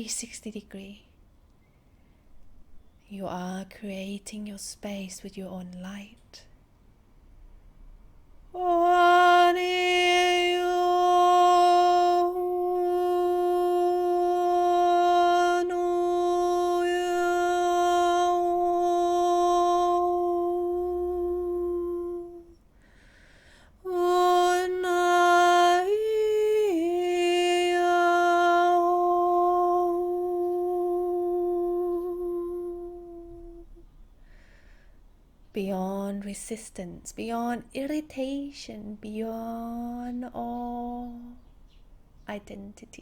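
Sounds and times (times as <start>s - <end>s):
woman humming: 8.6s - 22.6s, 23.8s - 33.8s.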